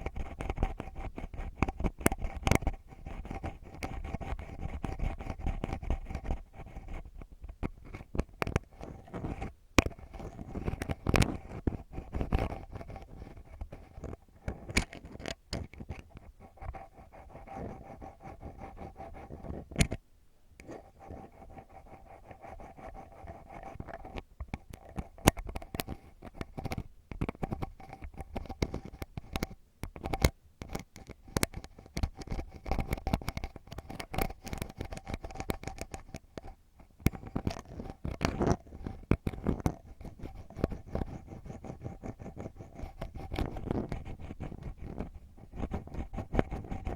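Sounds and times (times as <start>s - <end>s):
ear pick scratching microphone: 0.0s - 20.0s, 37.1s - 46.9s.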